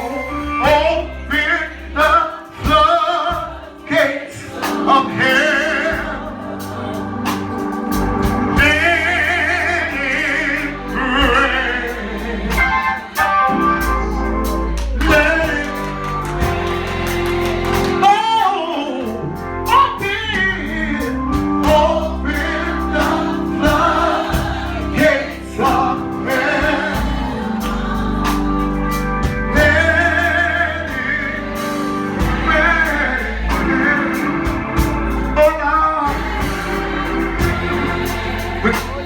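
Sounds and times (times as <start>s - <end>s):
organ chords: 0.0s - 39.0s
drum hits: 7.3s - 9.2s, 12.5s - 18.4s, 21.3s - 30.0s, 31.6s - 35.5s, 36.1s - 39.0s.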